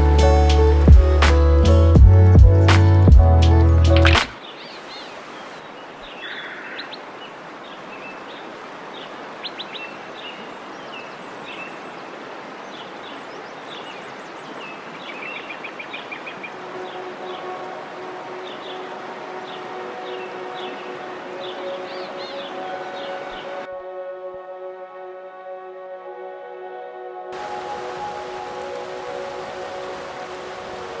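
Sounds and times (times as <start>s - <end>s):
small birds chirping: 0.0s - 17.0s
rushing outdoor background noise: 0.0s - 23.7s, 27.4s - 31.0s.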